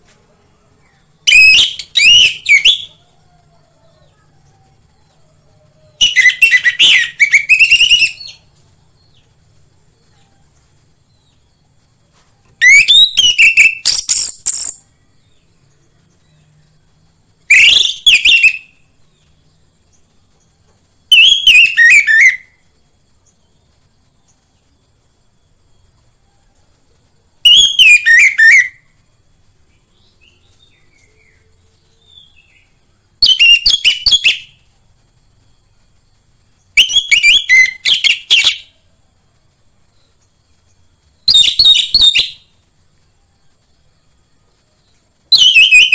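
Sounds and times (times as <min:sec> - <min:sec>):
faint high hiss: 0:00.0 - 0:45.9
thrush singing whistled notes: 0:01.1 - 0:03.3, 0:04.5 - 0:09.3, 0:12.5 - 0:20.1, 0:21.0 - 0:23.6, 0:27.4 - 0:29.1, 0:29.7 - 0:38.9, 0:39.9 - 0:45.9.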